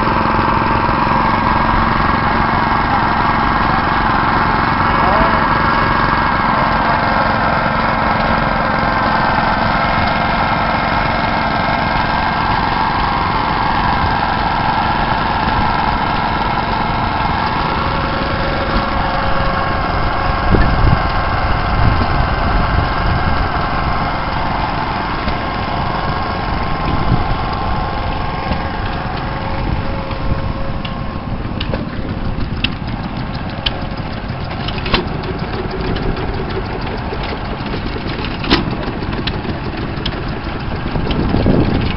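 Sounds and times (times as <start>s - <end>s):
stationary engines running: 0.0s - 41.9s
sharp ticks or clicks: 31.6s - 41.9s.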